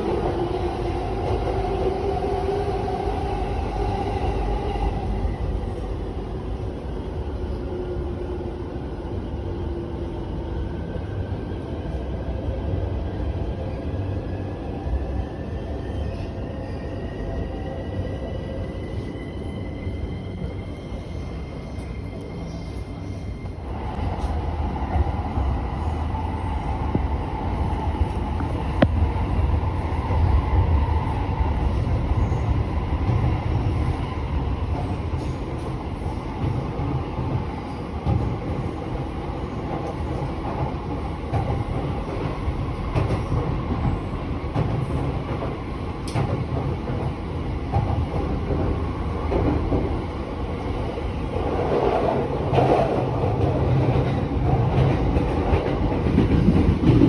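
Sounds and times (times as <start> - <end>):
train wheels rumbling on rails: 17.4 - 57.0.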